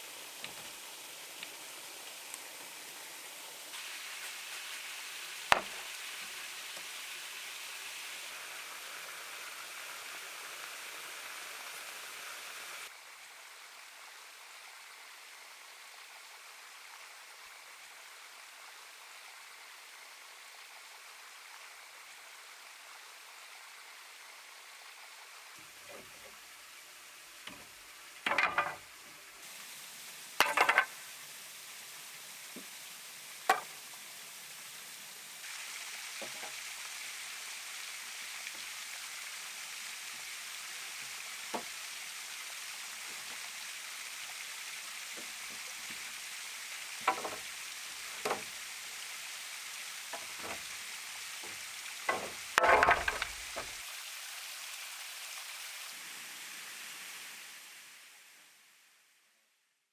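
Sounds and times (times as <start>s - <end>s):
steady outdoor hiss: 0.0s - 59.6s
sharp knocks and taps: 30.4s - 30.9s, 47.1s - 47.5s, 48.2s - 48.5s, 50.2s - 50.7s, 51.4s - 53.7s.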